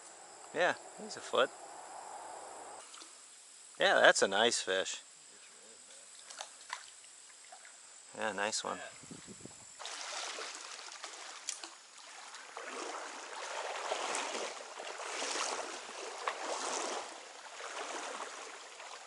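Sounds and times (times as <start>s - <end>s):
stream water rushing and splashing: 9.8s - 19.0s.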